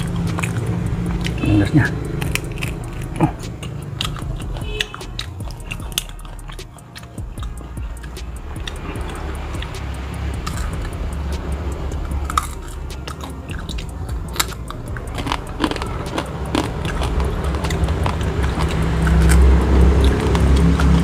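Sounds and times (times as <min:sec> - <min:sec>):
chewing and biting: 0:00.0 - 0:21.0
low rumble: 0:00.0 - 0:21.0
wet mouth clicks and smacks: 0:00.0 - 0:21.0.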